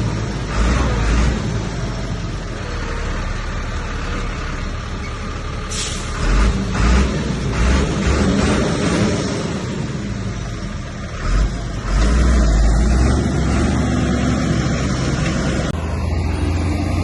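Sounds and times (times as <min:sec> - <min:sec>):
bulldozer diesel engine under load: 0:00.0 - 0:17.0
short hiss: 0:05.7 - 0:06.2.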